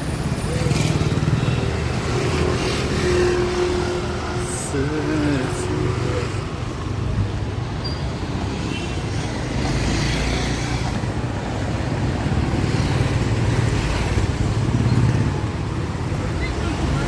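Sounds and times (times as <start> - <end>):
traffic engines rumbling: 0.0 - 17.0.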